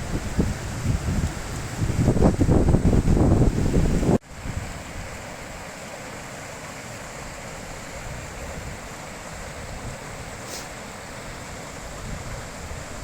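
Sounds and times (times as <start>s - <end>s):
wind buffeting microphone: 0.0s - 5.2s, 11.8s - 13.0s
river rushing over rocks: 0.0s - 13.0s.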